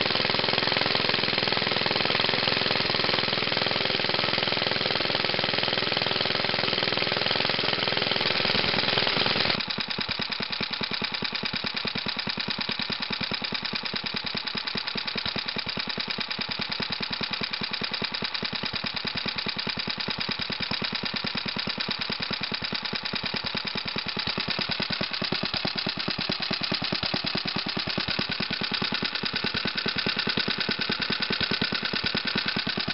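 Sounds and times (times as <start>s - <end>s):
single-cylinder engine popping: 0.0s - 32.9s.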